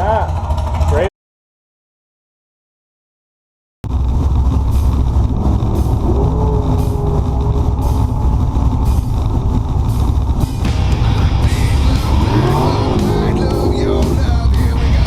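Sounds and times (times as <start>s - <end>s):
hard rock song: 5.0s - 15.0s.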